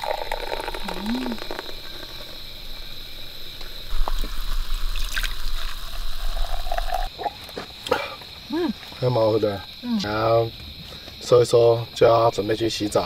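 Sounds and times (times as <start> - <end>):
fizzy drink pouring: 0.0 - 2.4, 3.9 - 7.2.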